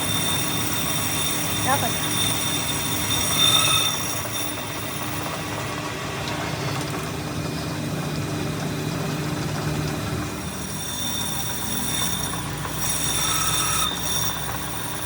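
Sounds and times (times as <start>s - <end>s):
faint high steady tones: 0.0s - 5.8s
machine hum: 0.0s - 15.0s.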